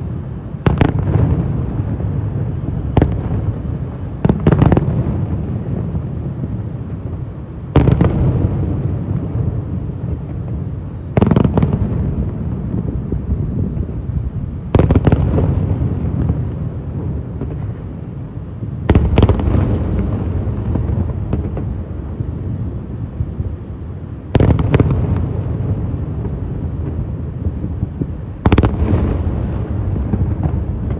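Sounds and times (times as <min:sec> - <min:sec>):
firework booms: 0:00.0 - 0:30.9
low rumble and crackling: 0:11.7 - 0:30.9
sharp firework cracks: 0:18.8 - 0:22.0, 0:24.2 - 0:30.9.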